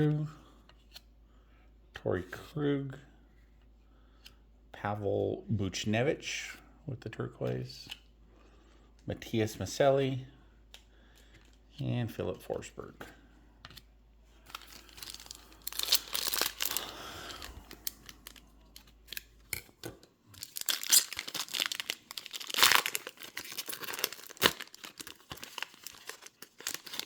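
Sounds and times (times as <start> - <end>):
card pack wrapper tearing and crinkling: 14.4 - 27.0.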